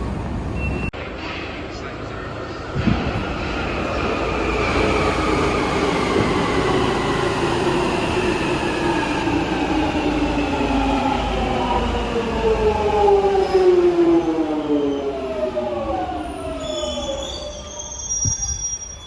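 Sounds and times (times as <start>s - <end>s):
train rumbling on track: 0.0s - 19.0s.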